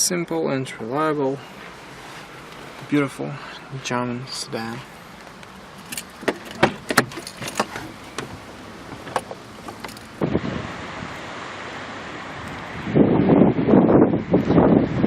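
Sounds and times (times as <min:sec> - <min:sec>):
clicks and knocks in car cabin: 0:05.2 - 0:10.2
wind on microphone: 0:10.2 - 0:11.3, 0:12.0 - 0:15.0.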